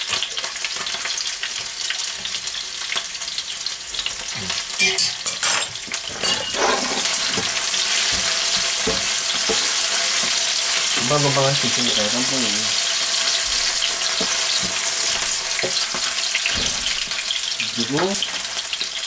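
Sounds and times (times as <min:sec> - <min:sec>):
onions sizzling in oil: 0:00.0 - 0:19.0
spatula scraping a pan: 0:04.3 - 0:11.0, 0:12.8 - 0:17.5.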